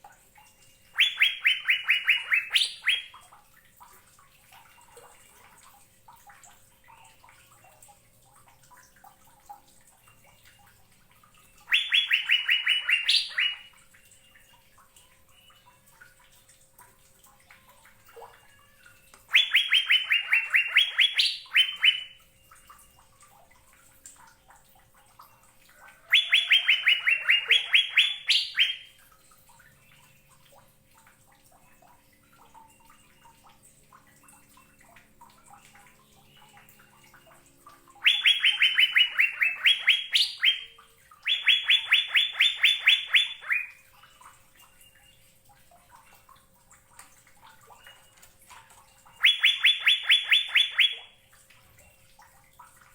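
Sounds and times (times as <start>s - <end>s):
bird singing phrases: 0.7s - 3.2s, 11.4s - 14.4s, 19.3s - 23.0s, 26.0s - 29.0s, 35.4s - 45.4s, 47.6s - 52.0s
faint bird twittering: 1.0s - 3.2s, 11.6s - 13.7s, 19.3s - 22.2s, 26.0s - 29.0s, 38.0s - 45.2s, 49.0s - 51.1s.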